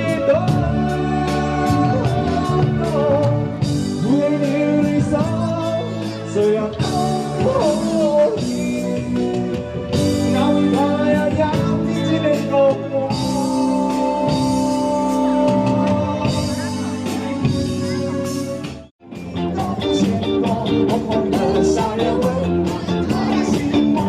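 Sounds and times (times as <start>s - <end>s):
drum kit playing: 0.0s - 24.0s
live rock band: 0.0s - 24.0s
electric guitar: 19.0s - 24.0s.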